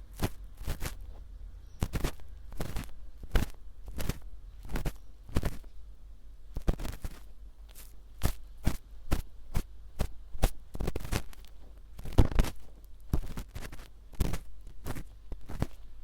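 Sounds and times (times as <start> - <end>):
ear pick scraping in ear: 0.0 - 1.2, 1.8 - 5.7
low mains hum: 0.0 - 16.0.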